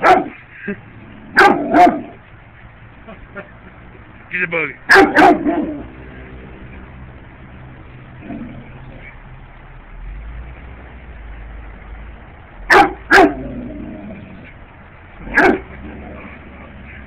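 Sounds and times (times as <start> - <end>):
dog barking: 0.0 - 0.4, 1.4 - 2.2, 4.9 - 5.9, 12.7 - 13.4, 15.3 - 15.7.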